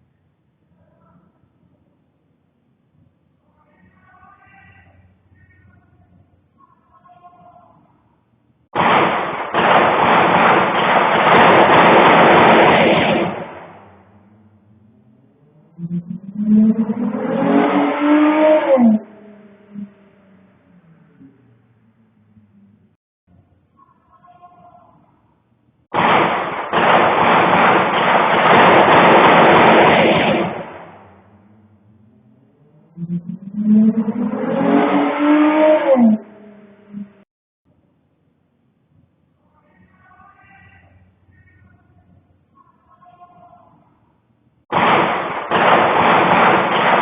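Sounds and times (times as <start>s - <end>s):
rapid gunfire volley: 8.8s - 13.9s, 25.9s - 31.1s, 44.7s - 47.0s.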